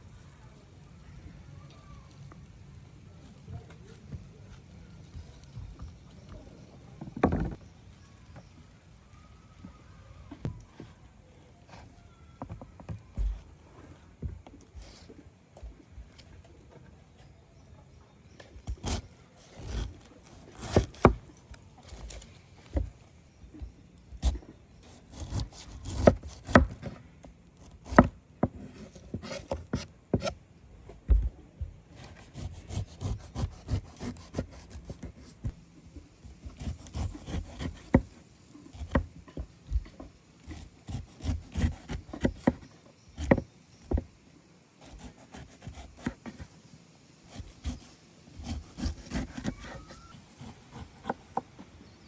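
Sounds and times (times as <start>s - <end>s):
wooden scraping: 3.4s - 7.7s, 18.4s - 44.2s, 47.3s - 52.0s
wooden knocks: 7.0s - 7.6s.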